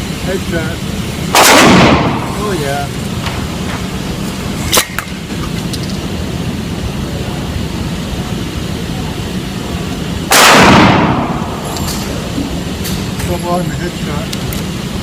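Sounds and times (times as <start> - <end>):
steady low rumble: 0.0 - 15.0
shotgun blast: 1.3 - 2.6, 10.3 - 11.6.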